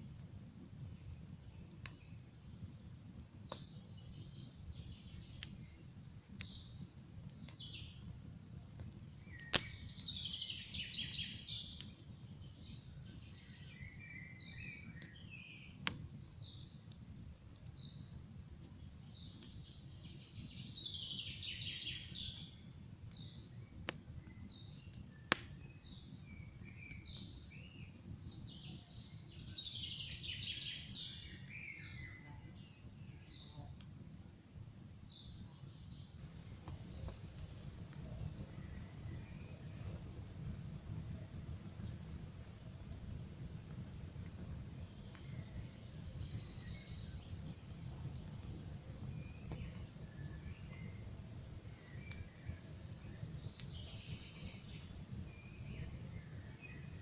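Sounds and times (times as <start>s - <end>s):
campfire crackling and popping: 0.0s - 57.0s
low rush of fire: 0.0s - 57.0s
birds chirping: 8.6s - 34.0s
trilled bird song falling in pitch: 9.2s - 16.7s, 24.2s - 33.8s.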